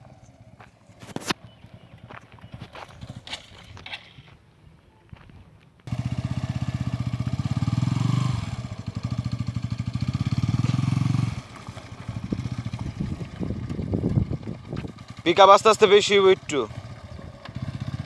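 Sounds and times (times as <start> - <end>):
old motorcycle engine revving: 5.9 - 18.0.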